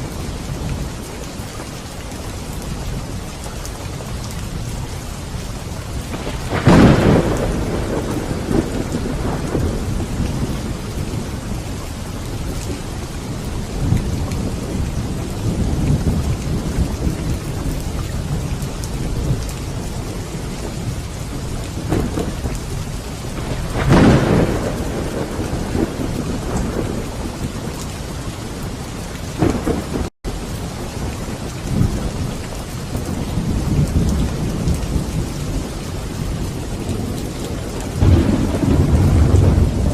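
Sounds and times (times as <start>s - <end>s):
heavy rain: 0.0s - 39.9s
thunder cracks and rumbling: 5.9s - 39.9s
rolls of thunder: 6.1s - 11.7s, 23.3s - 27.7s, 33.3s - 39.9s.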